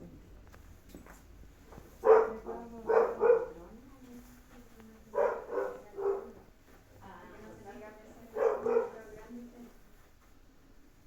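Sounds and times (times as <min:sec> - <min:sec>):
dog barking: 0:02.0 - 0:03.6, 0:05.1 - 0:06.4, 0:08.3 - 0:09.1.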